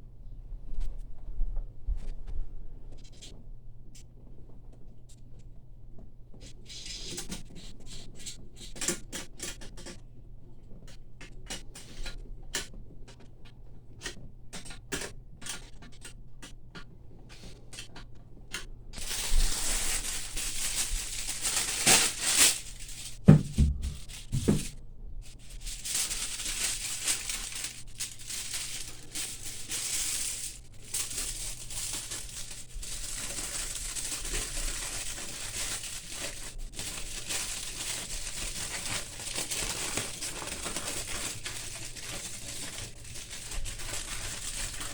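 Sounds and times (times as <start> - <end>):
rustling and crinkling: 17.2 - 44.9
dull thumps: 20.7 - 24.8.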